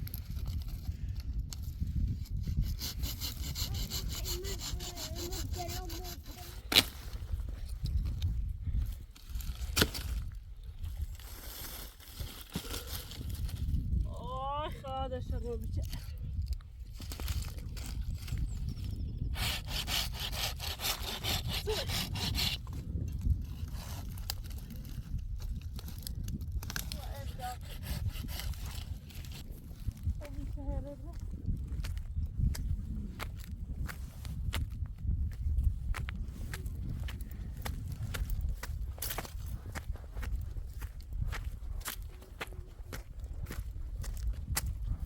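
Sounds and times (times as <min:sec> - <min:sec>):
saw cutting wood: 0:02.4 - 0:06.9, 0:19.3 - 0:22.7, 0:26.8 - 0:29.4.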